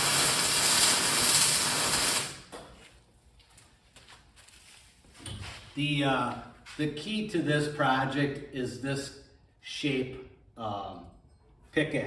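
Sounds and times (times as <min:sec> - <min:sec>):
electric arc welding: 0:00.0 - 0:02.5.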